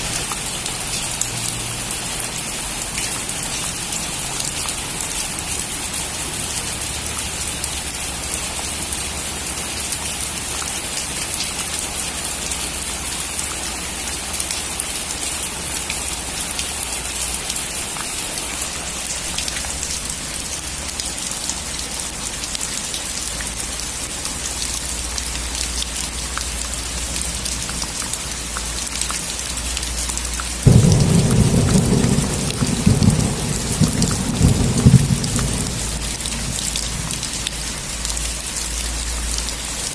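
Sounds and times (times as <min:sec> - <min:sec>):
steady rain falling: 0:00.0 - 0:39.9
thunderclap rumbling: 0:30.6 - 0:37.5.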